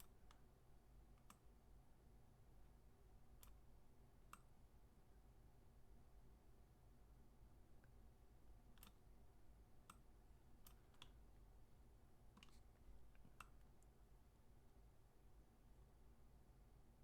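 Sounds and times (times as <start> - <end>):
computer mouse and key clicks: 1.2 - 1.5, 3.4 - 3.6, 8.7 - 9.0, 9.8 - 11.2, 12.3 - 13.9.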